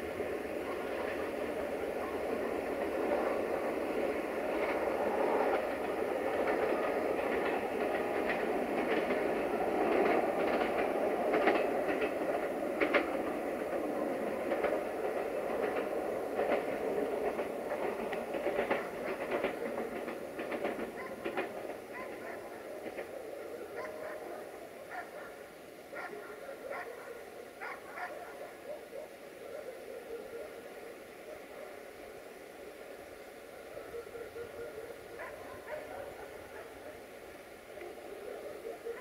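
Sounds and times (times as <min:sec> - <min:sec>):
train wheels rumbling on rails: 0:00.0 - 0:28.8, 0:30.7 - 0:39.0
clicks over rail joints: 0:06.4 - 0:13.4, 0:14.4 - 0:23.1.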